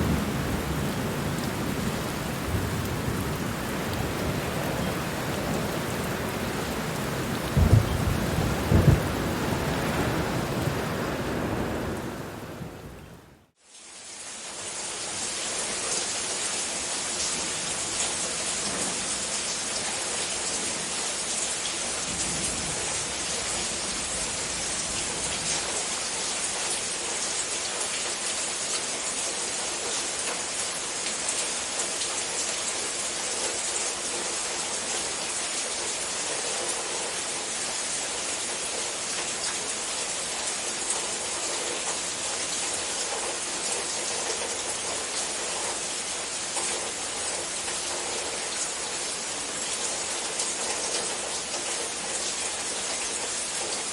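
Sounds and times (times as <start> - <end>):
distant thunder rumble: 0.0 - 13.1
rain pattering: 0.0 - 13.5, 15.6 - 53.9.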